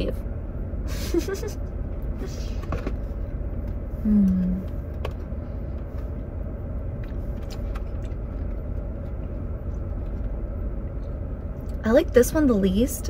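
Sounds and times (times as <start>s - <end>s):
car engine idling: 0.0s - 13.0s
person humming: 4.0s - 4.6s.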